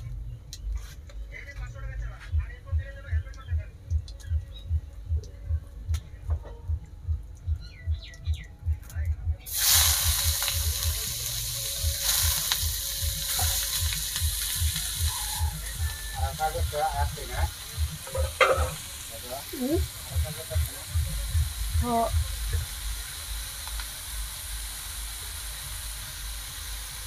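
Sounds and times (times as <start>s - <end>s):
low regular thudding: 1.6s - 9.5s, 15.7s - 23.0s
greens sizzling in hot oil: 9.5s - 27.0s.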